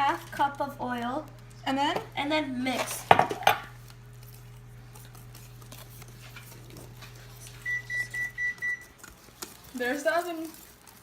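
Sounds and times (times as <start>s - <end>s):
oven control panel beeping: 7.6s - 8.9s.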